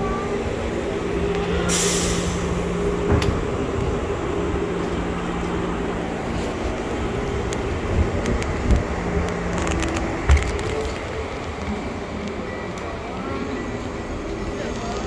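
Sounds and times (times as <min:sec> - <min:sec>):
train equipment humming: 0:00.0 - 0:15.0
loud hiss burst: 0:01.6 - 0:02.6.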